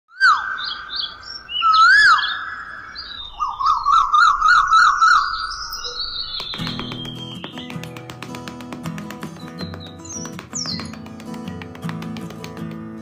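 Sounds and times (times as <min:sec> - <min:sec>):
bird chirping and whistling: 0:00.1 - 0:07.8.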